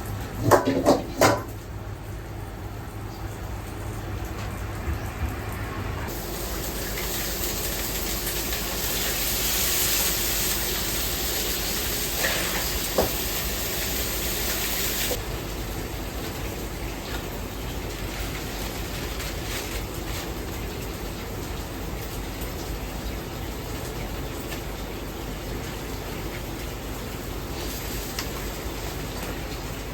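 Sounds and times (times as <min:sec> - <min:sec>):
kitchen background noise: 0:00.0 - 0:01.9, 0:03.0 - 0:29.9
rushing hiss of water or steam: 0:06.1 - 0:15.2.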